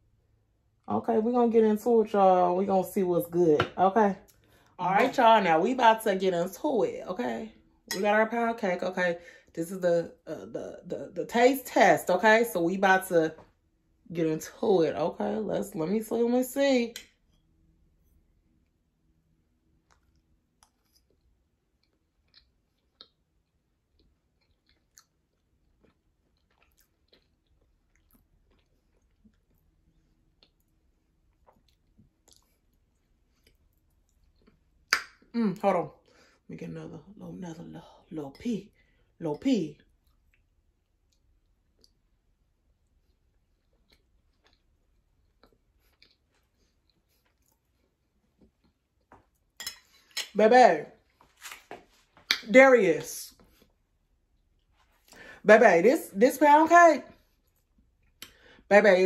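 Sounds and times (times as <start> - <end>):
faint chewing with mouth clicks: 19.6 - 35.3, 39.8 - 50.2, 57.1 - 58.7
faint mouth clicks from chewing: 19.9 - 21.2.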